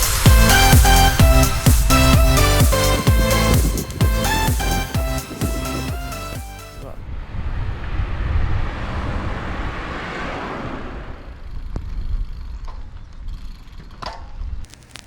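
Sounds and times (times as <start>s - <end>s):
road rushing sound: 0.0s - 6.2s, 7.2s - 11.6s
low rumble: 0.0s - 12.0s.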